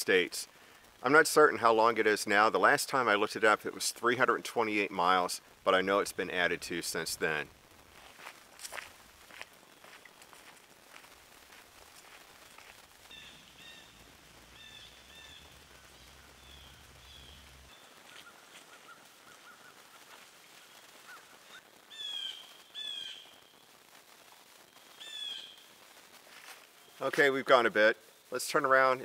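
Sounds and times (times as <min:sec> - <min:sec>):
birds calling harshly: 0:13.0 - 0:20.0, 0:21.0 - 0:23.3, 0:25.0 - 0:25.6.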